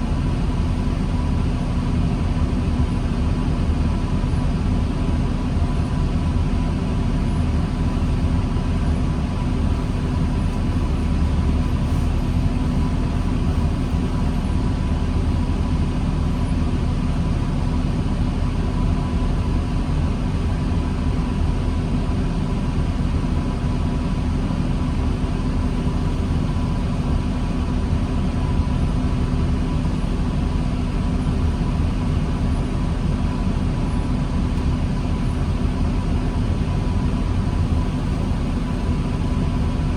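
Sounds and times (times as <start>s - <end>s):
diesel bus engine rumble: 0.0s - 39.9s.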